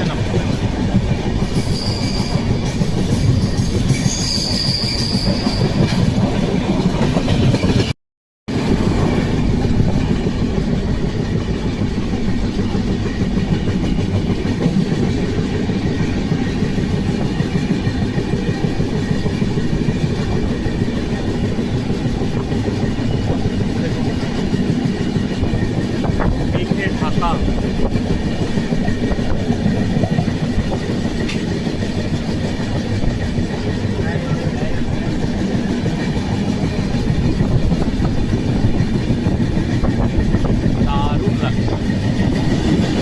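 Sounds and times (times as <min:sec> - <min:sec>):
train wheels rumbling on track: 0:00.0 - 0:43.0
short high wheel squeals: 0:01.4 - 0:02.6, 0:03.3 - 0:05.8.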